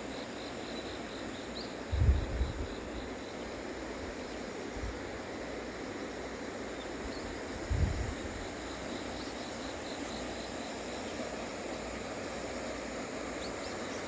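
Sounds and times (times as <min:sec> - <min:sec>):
wind buffeting microphone: 0:01.9 - 0:02.8, 0:07.5 - 0:08.5.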